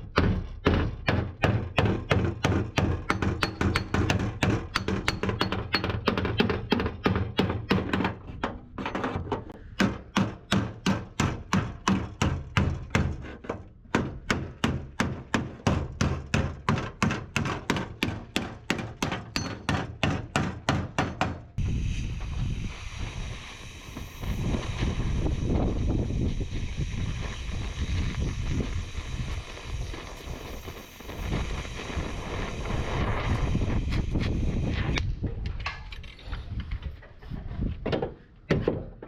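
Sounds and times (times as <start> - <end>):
hammer on sheet metal: 0.1 - 8.2, 9.7 - 21.6
steady rushing noise: 21.6 - 35.0.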